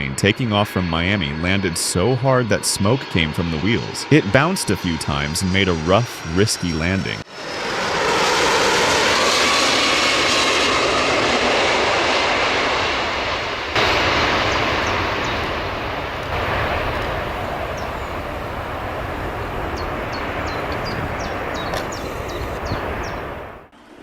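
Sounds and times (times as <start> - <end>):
jet engines roaring: 0.0 - 24.0
faint high chirps: 19.7 - 23.2.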